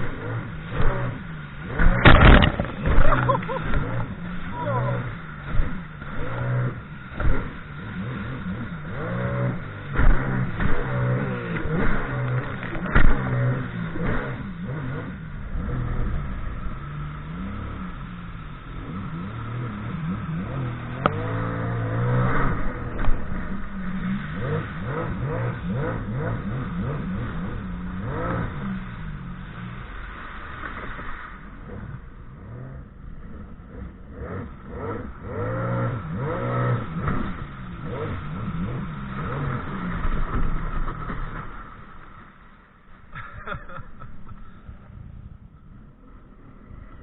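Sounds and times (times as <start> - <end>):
watercraft engine revving: 0.0 - 47.0
sharp thumps: 1.7 - 4.1, 9.9 - 13.4.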